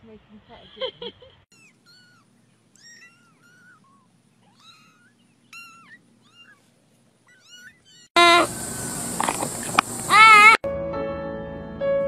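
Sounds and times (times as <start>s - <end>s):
kitten mewing: 1.5s - 8.5s, 10.0s - 10.6s.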